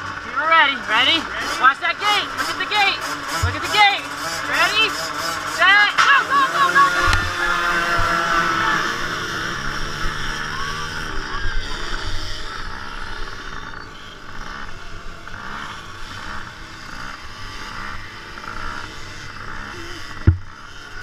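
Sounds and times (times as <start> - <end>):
motocross bike engines revving: 0.0 - 21.0
sharp thump: 3.4 - 3.7, 20.2 - 20.5.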